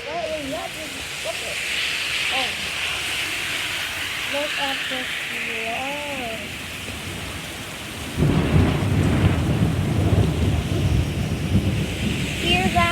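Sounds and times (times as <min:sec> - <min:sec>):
heavy rain hissing: 0:00.0 - 0:12.9
low rumble of thunder: 0:05.5 - 0:12.9.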